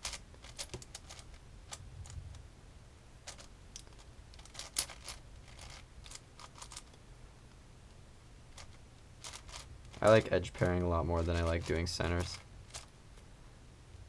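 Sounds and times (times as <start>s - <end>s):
faint low hum: 0.0s - 14.0s
plastic puzzle cube clicking: 3.3s - 7.0s, 8.6s - 10.6s.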